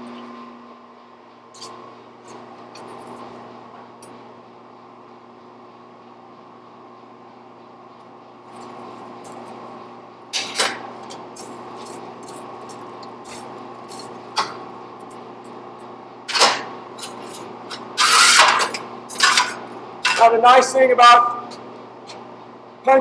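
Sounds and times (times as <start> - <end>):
steady fan-like hum: 0.0 - 23.0
metal tools clanking: 16.3 - 20.4.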